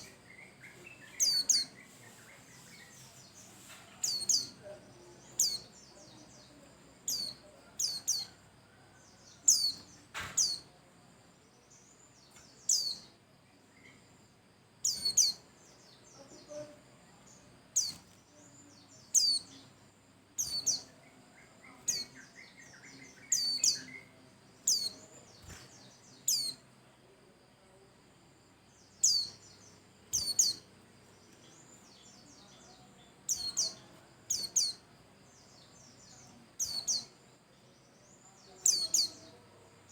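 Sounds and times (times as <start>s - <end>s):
bird high-pitched calls: 0.7s - 4.6s, 14.8s - 15.4s, 20.4s - 21.0s, 29.0s - 29.4s, 30.1s - 30.6s.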